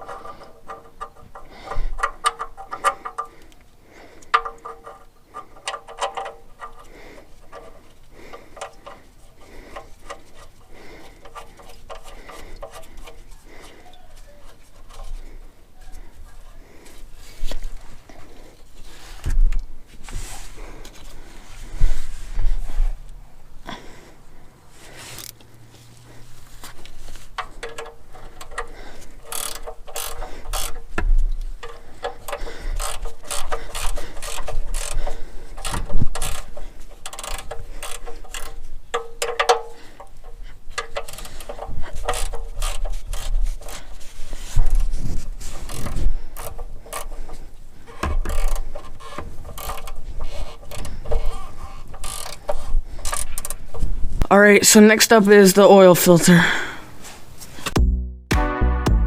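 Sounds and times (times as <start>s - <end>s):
socket ratchet wrench clicking: 4.2s - 6.9s, 27.4s - 43.8s, 48.0s - 53.6s.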